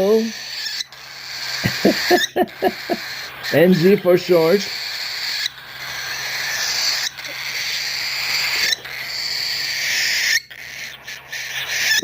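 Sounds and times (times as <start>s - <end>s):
cockatiel begging screech: 0.1s - 12.0s.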